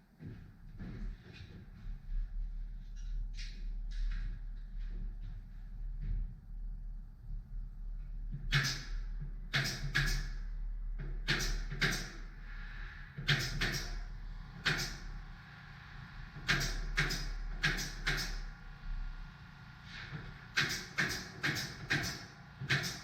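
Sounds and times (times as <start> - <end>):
nail gun firing into wood: 8.5 - 8.9, 9.5 - 10.3, 11.3 - 12.2, 13.3 - 13.9, 16.5 - 18.4, 20.6 - 23.0.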